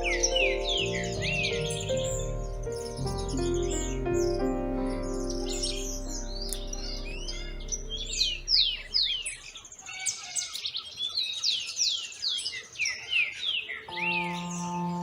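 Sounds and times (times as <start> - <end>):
soft background music: 0.0 - 9.2, 13.9 - 15.0
birds chirping and twittering: 0.0 - 15.0.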